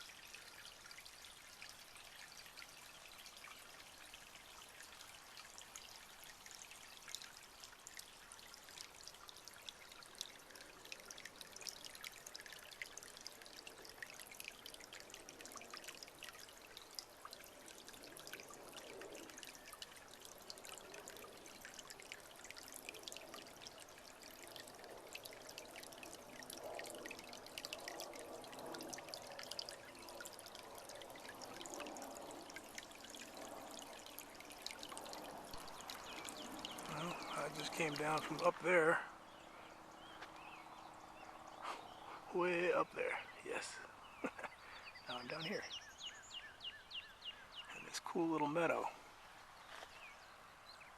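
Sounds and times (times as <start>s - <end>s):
faint trickling water: 0.0s - 50.9s.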